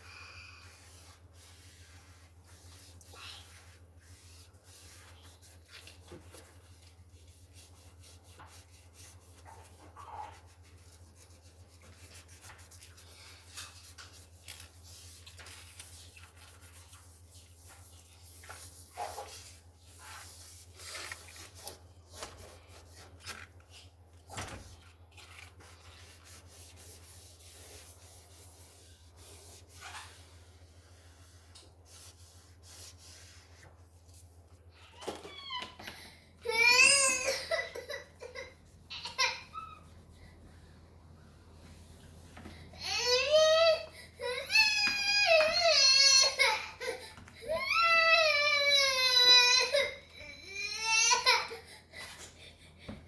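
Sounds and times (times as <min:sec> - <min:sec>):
scrubbing and wiping a surface: 0:00.5 - 0:34.8.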